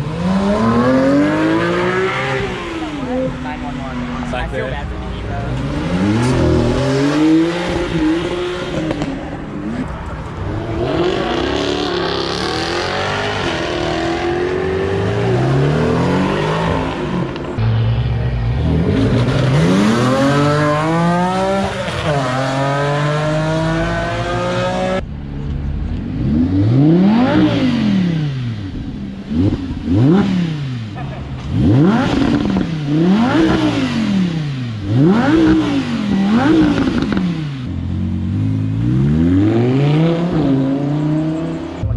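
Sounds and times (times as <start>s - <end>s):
car engines revving and accelerating: 0.0s - 41.9s.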